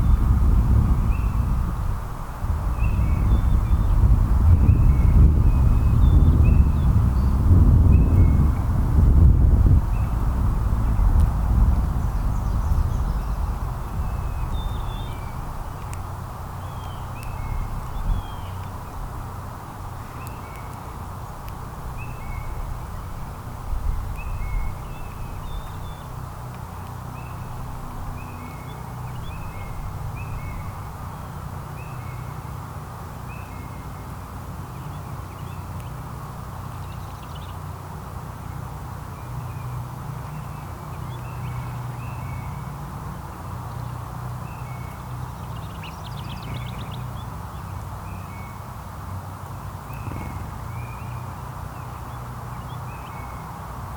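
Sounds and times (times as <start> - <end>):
steady low rumble: 0.0 - 28.3.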